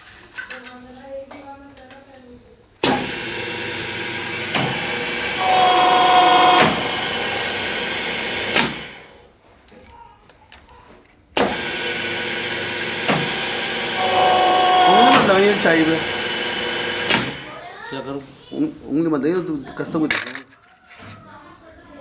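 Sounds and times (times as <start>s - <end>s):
key-cutting machine whining: 2.8s - 9.2s, 11.4s - 17.6s.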